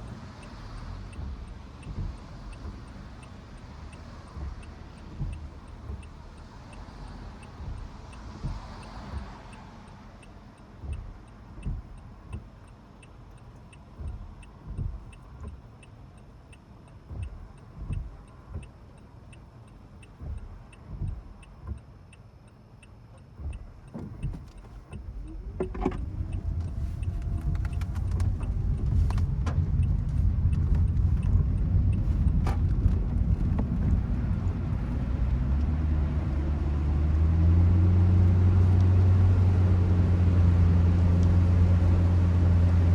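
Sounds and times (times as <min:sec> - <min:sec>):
faint ticking: 0:00.0 - 0:37.3
car engine and road rumble: 0:00.0 - 0:42.9
low thumps: 0:23.4 - 0:37.4.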